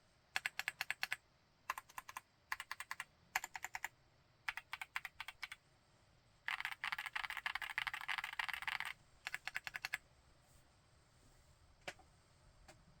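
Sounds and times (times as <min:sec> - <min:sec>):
mechanical keyboard typing: 0:00.4 - 0:03.9, 0:04.5 - 0:05.6, 0:06.5 - 0:10.0.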